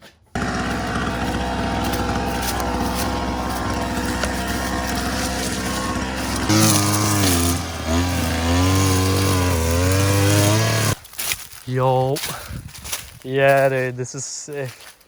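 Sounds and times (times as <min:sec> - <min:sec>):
dirt bike engine revving: 0:00.4 - 0:11.0.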